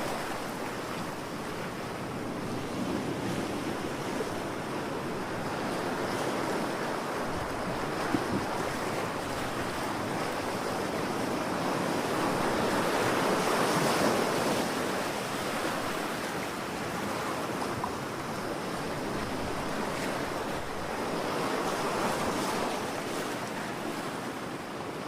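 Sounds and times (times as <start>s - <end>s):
ocean waves washing on shore: 0.0s - 25.0s.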